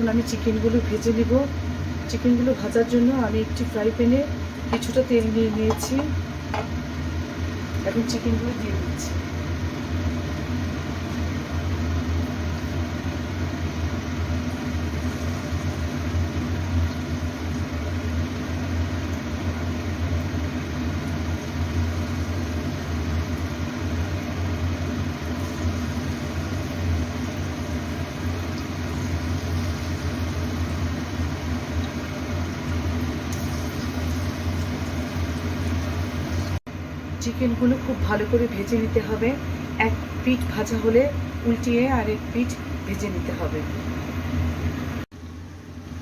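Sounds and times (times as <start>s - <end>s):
chicken sizzling in oil: 9.2s - 36.6s.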